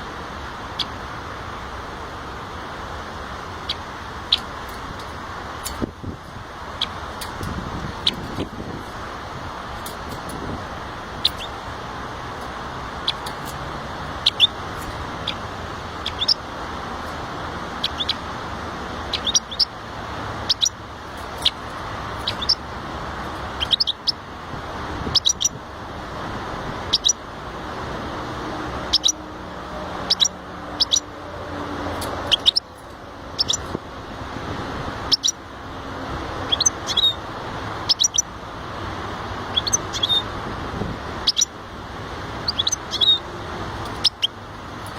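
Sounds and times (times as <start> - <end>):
finch chirping: 6.8 - 8.5, 11.1 - 11.6, 14.2 - 15.4, 16.0 - 16.4, 17.8 - 18.2, 19.0 - 19.7, 20.4 - 21.6, 22.2 - 22.6, 23.5 - 24.2, 25.1 - 25.6, 26.9 - 27.2, 28.9 - 29.2, 30.0 - 31.1, 32.0 - 33.8, 35.0 - 35.4, 36.5 - 37.2, 37.8 - 38.3, 39.5 - 40.2, 41.2 - 41.5, 42.4 - 44.9.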